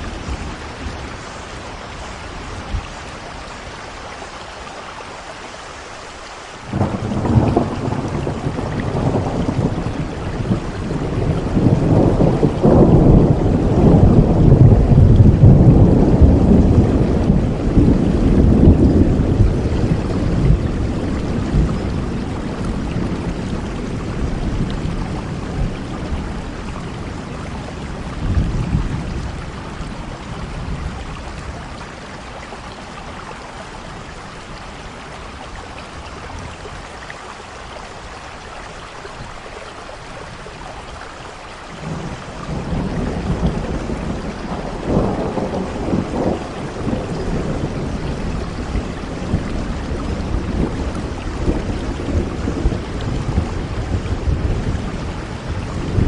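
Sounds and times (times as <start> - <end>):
heavy rain falling: 0.0 - 56.0
rolling thunder: 6.7 - 32.3, 41.8 - 56.0.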